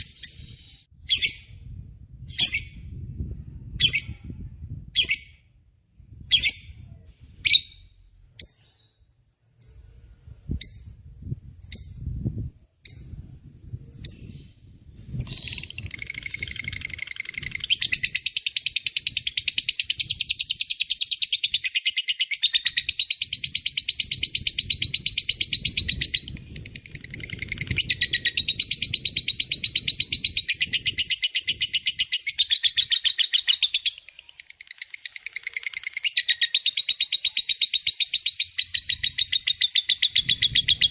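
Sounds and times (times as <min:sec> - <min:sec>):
lovebird chirping: 0:00.0 - 0:03.0, 0:06.3 - 0:12.2, 0:12.8 - 0:13.3, 0:13.9 - 0:40.9
lovebird rattling chatter: 0:15.0 - 0:21.8, 0:22.7 - 0:36.8.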